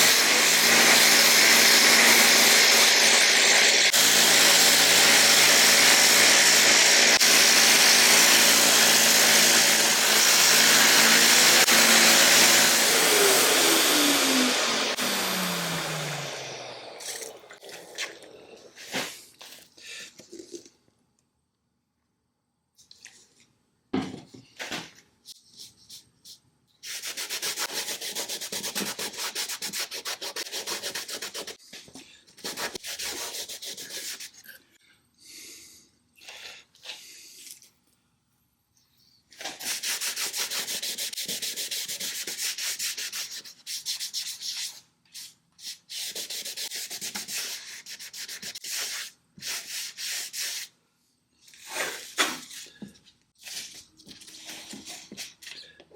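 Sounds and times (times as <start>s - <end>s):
sanding scratchy rubbing: 26.8s - 31.6s, 32.4s - 34.4s, 39.6s - 50.7s.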